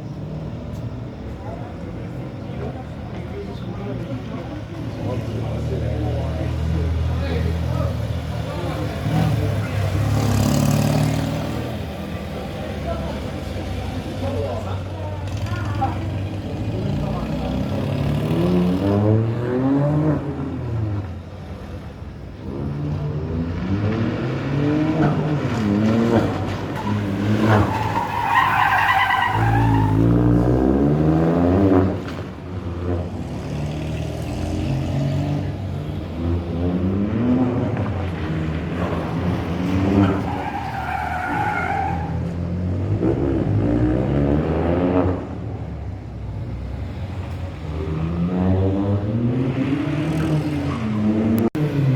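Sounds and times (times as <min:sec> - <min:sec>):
rally car engine revving: 0:04.7 - 0:21.2, 0:22.4 - 0:51.9
tyres squealing: 0:24.9 - 0:30.4, 0:38.7 - 0:42.4.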